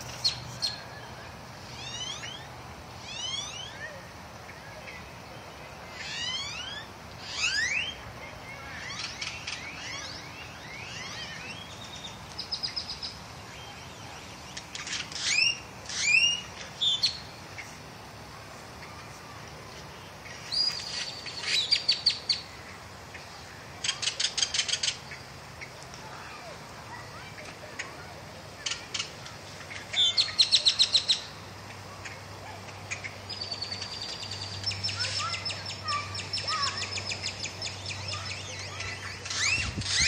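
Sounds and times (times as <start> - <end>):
steady low background hum: 0.0 - 40.0
birds chirping and singing: 28.6 - 31.4, 32.8 - 40.0.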